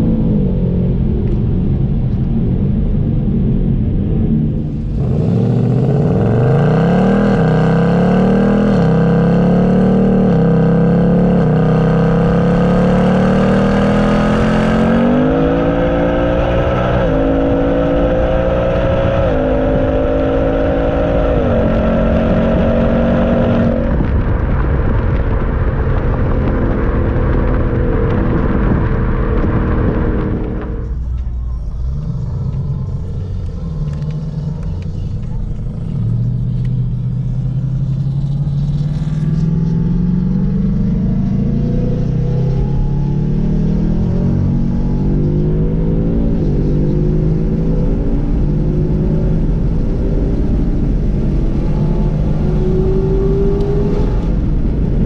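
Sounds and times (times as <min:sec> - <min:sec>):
car engine revving through upshifts: 0:04.5 - 0:24.0, 0:27.7 - 0:55.0.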